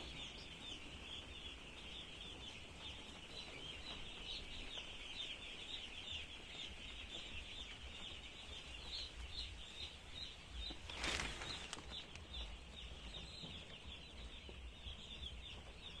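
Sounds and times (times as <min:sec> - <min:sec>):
chicks peeping: 0:00.0 - 0:16.0
loud rustle: 0:10.8 - 0:12.2.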